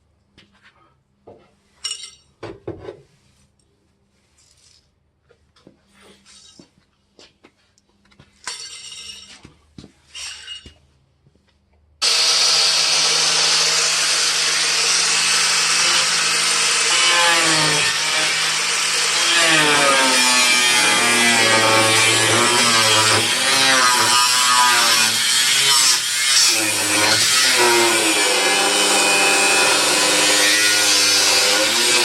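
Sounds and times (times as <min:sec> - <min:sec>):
power tool cutting sheet metal: 0:12.0 - 0:32.0.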